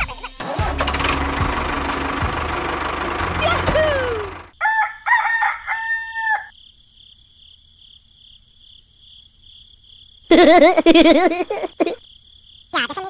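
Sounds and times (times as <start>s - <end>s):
rooster crowing: 4.0s - 6.6s
insects chirring: 4.5s - 13.0s.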